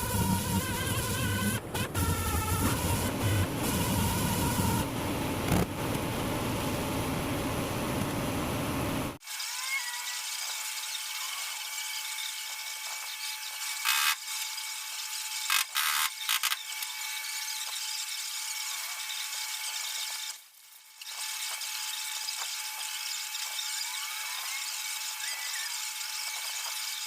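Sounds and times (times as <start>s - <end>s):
power tool whining: 0.0s - 5.7s.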